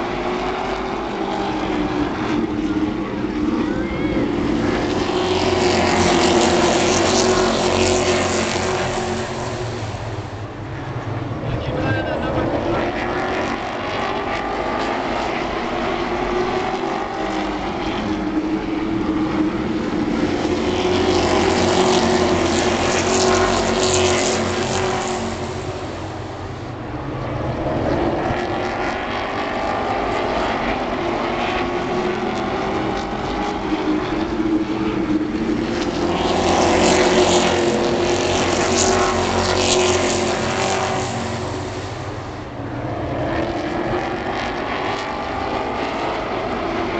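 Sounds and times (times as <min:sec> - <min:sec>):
racing truck engines passing: 0:00.0 - 0:46.9.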